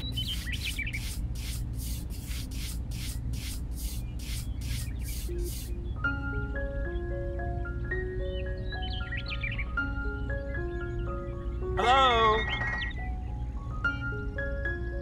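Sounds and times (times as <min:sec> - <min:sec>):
metal trowel scraping sand: 0:00.0 - 0:05.7.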